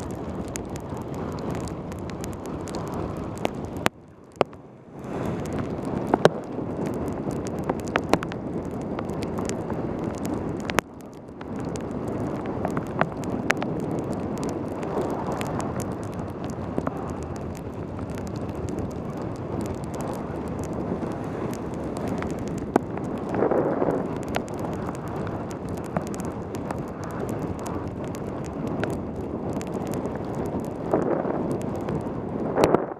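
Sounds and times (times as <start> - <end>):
pouring rain: 0.0 - 32.9
wet tyre noise: 0.0 - 32.9
wind rushing over microphone: 0.0 - 32.9
sharp ticks: 5.4 - 20.8.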